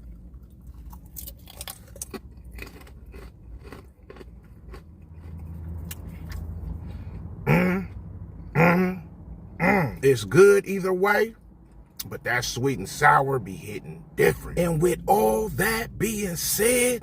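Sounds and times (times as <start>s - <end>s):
crispy food chewing crunches: 0.0s - 6.7s.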